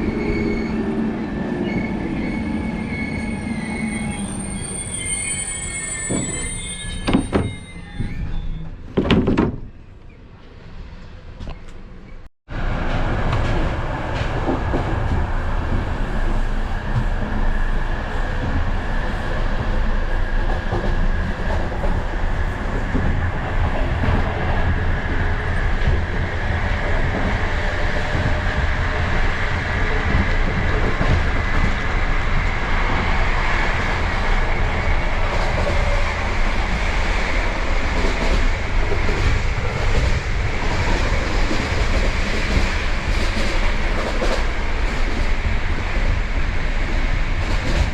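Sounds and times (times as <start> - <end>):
clickety-clack of rail joints: 7.0 - 17.5, 18.1 - 47.9
train wheels rumbling on rails: 10.4 - 47.9.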